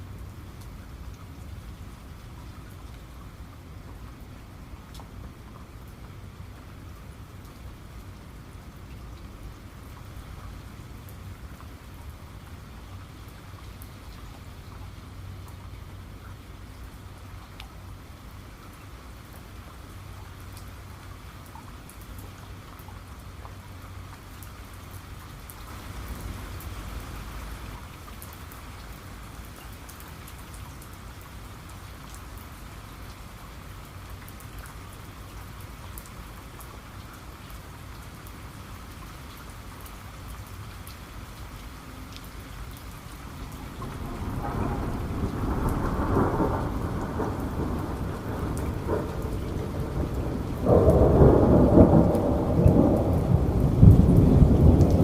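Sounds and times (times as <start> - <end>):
steady rain: 0.0 - 55.0
thunder rumbling: 43.4 - 55.0.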